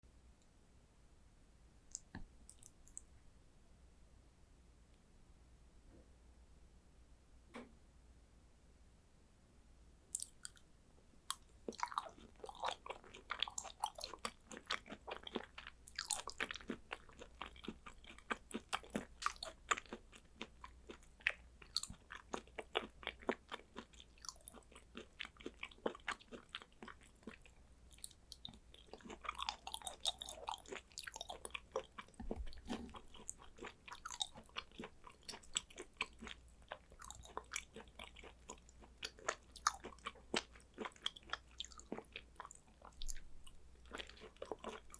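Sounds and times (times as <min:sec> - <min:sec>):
mouth chewing clicks and smacks: 0:01.9 - 0:03.1, 0:10.1 - 0:10.6, 0:11.3 - 0:44.9.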